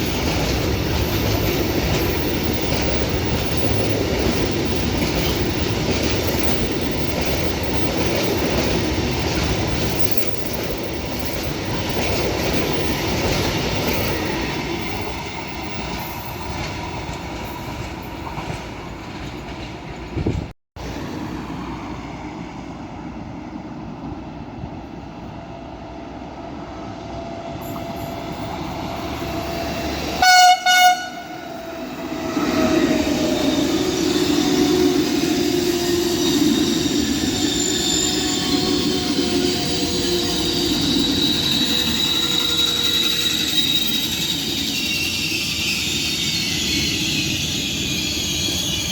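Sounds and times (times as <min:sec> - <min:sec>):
train wheels on rails: 0:00.0 - 0:48.9
train horn blasts: 0:29.2 - 0:32.8.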